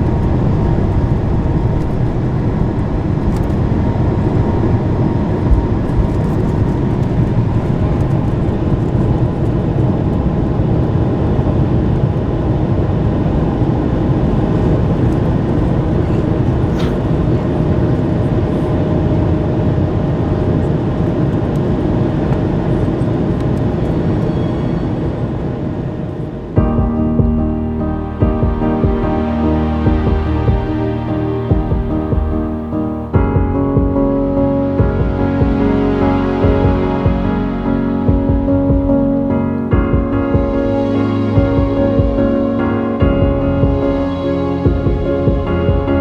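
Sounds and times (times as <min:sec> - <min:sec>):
jet engine cabin rumble: 0:00.0 - 0:46.0.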